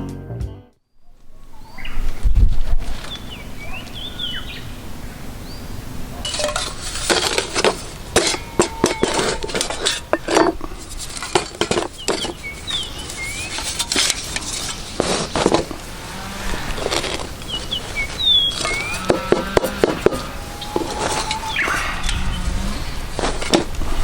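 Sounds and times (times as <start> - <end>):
metal cookware clattering: 6.2 - 12.4.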